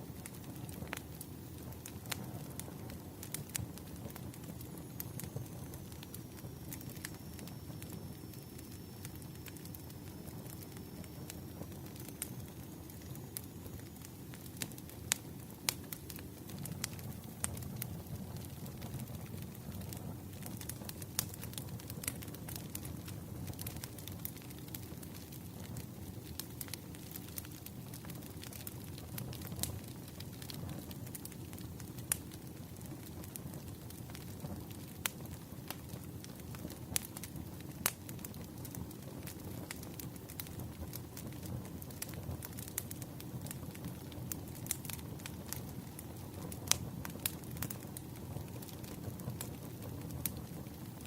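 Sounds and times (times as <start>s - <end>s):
logs burning and crackling: 0.0s - 51.0s
low steady fire rumble: 0.0s - 51.0s.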